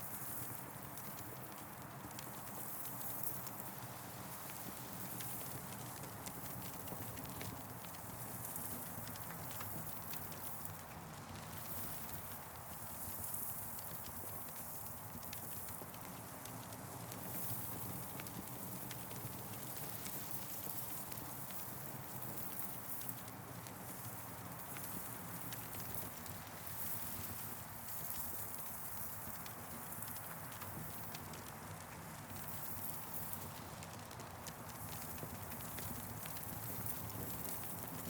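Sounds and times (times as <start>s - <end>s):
campfire crackling and popping: 0.7s - 38.0s
steady fire hiss: 11.4s - 38.0s.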